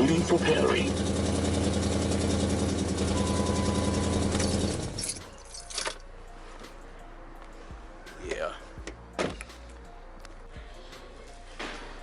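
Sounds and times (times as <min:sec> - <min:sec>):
car engine idling: 0:00.0 - 0:05.2
keys jingling: 0:04.4 - 0:06.1.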